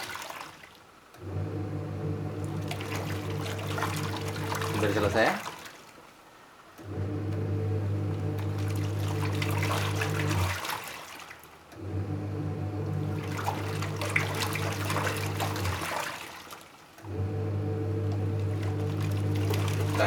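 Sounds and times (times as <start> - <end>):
water sloshing: 0.0 - 1.0, 2.3 - 6.3, 8.1 - 11.9, 12.8 - 17.3, 18.0 - 20.0
washing machine motor humming: 0.1 - 5.8, 6.6 - 20.0.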